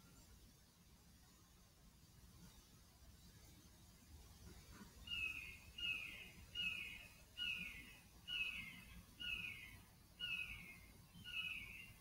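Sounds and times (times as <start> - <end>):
bird downward-slurred calls: 5.1 - 11.9.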